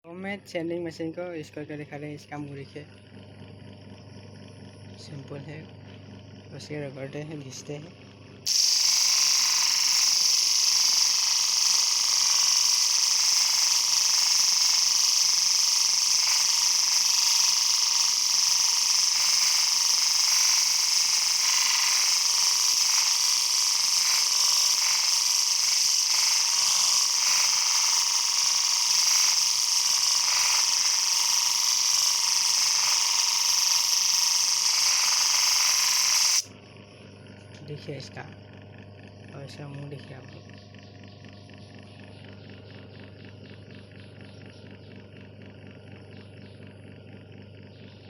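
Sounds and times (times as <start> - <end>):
sanding machine grinding: 8.5 - 36.5.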